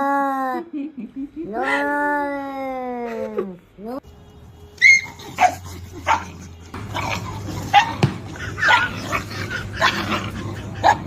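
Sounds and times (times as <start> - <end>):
dog yipping: 4.8 - 6.3, 6.9 - 9.2.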